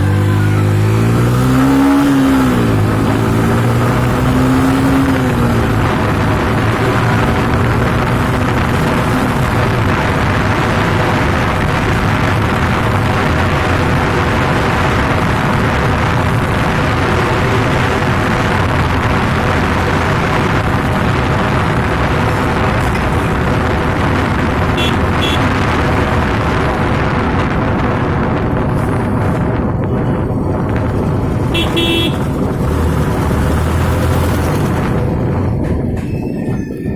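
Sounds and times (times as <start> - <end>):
motorcycle engine: 0.0 - 36.9
wind and road noise: 0.0 - 36.9.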